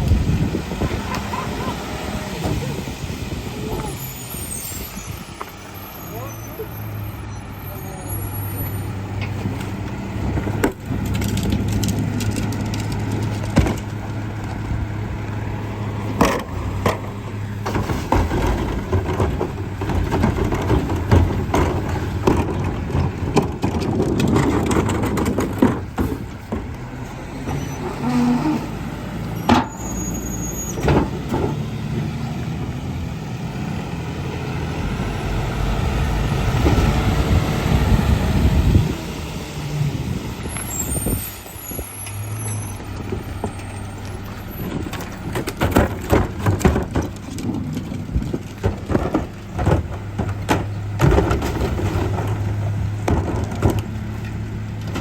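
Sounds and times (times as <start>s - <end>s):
garbage truck engine humming: 0.0s - 55.0s
bangs and clanks: 43.0s - 55.0s.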